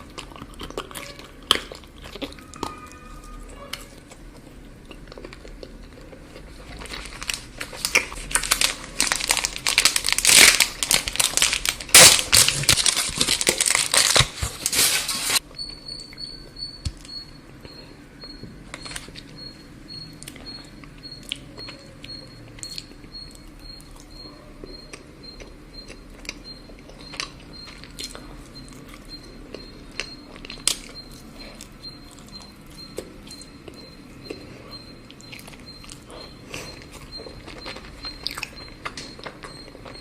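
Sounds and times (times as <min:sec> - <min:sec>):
wrapper crinkling and tearing: 0:06.8 - 0:15.4.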